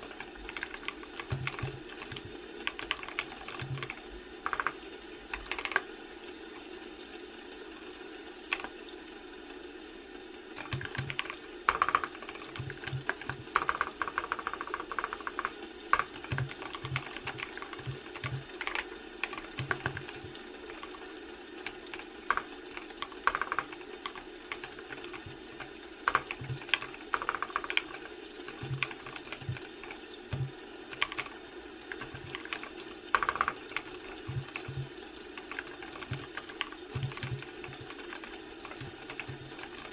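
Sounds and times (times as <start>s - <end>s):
computer keyboard typing: 0.0s - 5.9s, 8.5s - 8.8s, 10.5s - 39.9s
low background hum: 0.0s - 39.9s.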